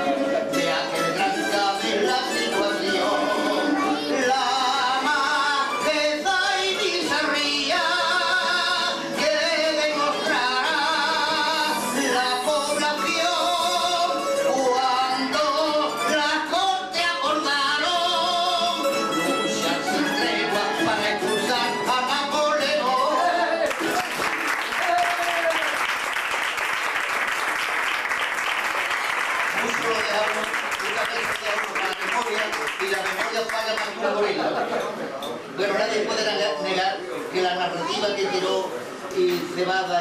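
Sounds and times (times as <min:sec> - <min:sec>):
person singing with vibrato: 0:00.0 - 0:25.5.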